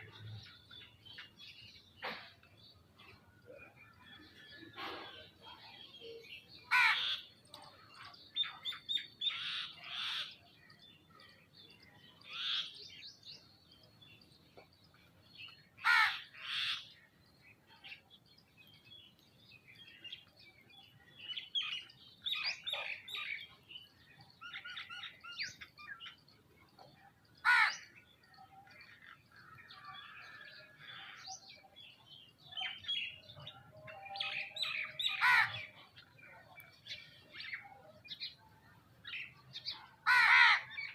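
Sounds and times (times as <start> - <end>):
birds chirping and calling: 0.0 - 40.9
loud sharp bird calls: 6.1 - 10.5, 15.8 - 17.1, 27.4 - 31.7, 32.5 - 36.1, 39.2 - 40.9.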